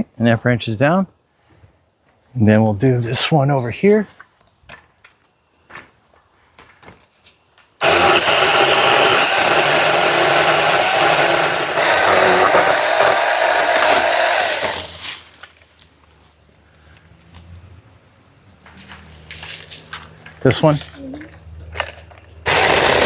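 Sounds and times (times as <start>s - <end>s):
electric chainsaw cutting branch: 7.8s - 15.4s, 22.4s - 23.0s.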